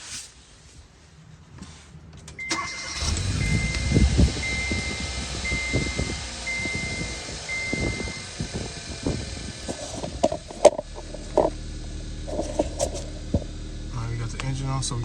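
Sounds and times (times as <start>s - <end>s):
car engine starting and idling: 2.1s - 15.0s
dashboard warning chime beeping: 2.4s - 8.5s.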